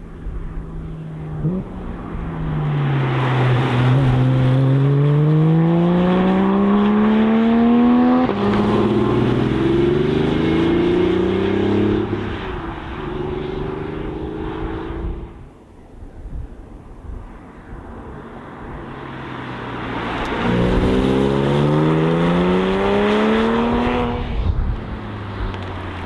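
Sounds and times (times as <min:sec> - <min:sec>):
sports car engine accelerating: 0:00.8 - 0:15.4, 0:20.0 - 0:26.0.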